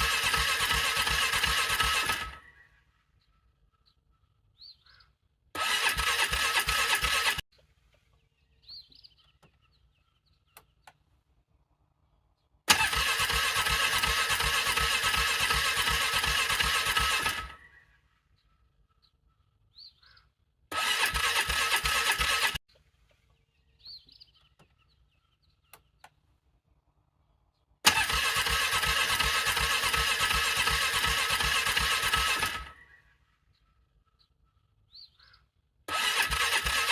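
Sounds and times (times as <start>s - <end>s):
engine cranking on starter: 0.0s - 2.5s, 5.6s - 7.4s, 12.7s - 17.7s, 20.7s - 22.6s, 27.8s - 32.9s, 35.9s - 36.9s.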